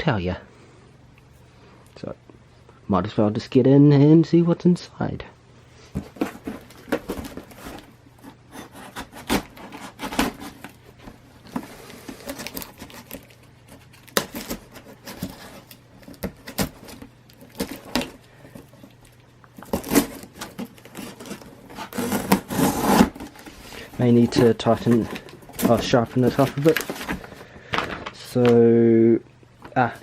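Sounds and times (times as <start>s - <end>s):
cardboard taps and scrapes: 5.9s - 13.2s
blade cutting through tape: 19.7s - 23.2s.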